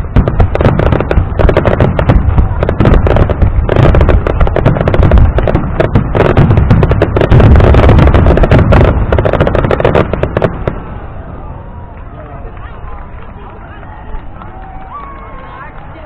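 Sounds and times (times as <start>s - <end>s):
low rumble: 0.0s - 15.0s
fireworks bangs and crackles: 0.0s - 16.0s.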